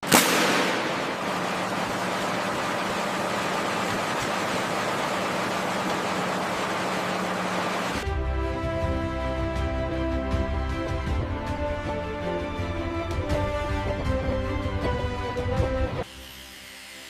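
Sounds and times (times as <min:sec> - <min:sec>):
steady rushing noise: 0:00.0 - 0:08.0
music: 0:08.0 - 0:17.0.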